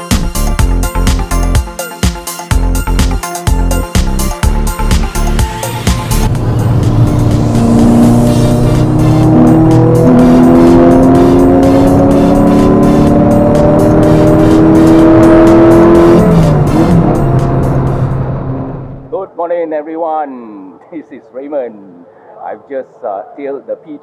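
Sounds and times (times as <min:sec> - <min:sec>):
car engine accelerating: 0:05.2 - 0:19.1.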